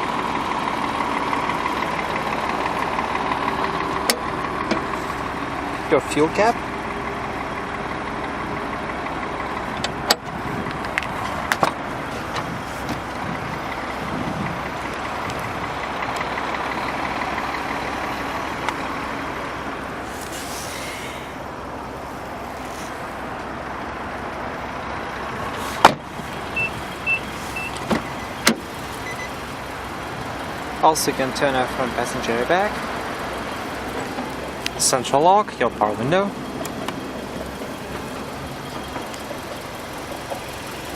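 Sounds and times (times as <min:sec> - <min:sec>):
car running hum: 0:00.0 - 0:40.9
short high beeps: 0:29.0 - 0:29.3.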